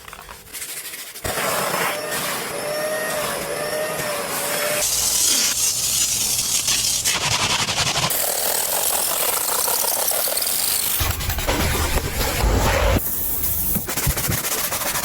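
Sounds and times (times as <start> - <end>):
car wash equipment hissing: 2.0 - 11.0.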